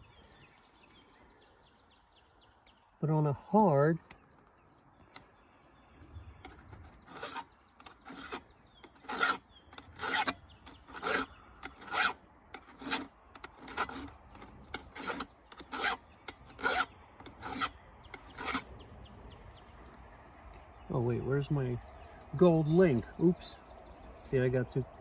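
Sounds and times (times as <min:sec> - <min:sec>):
file rasping on chainsaw chain: 0:06.4 - 0:18.7.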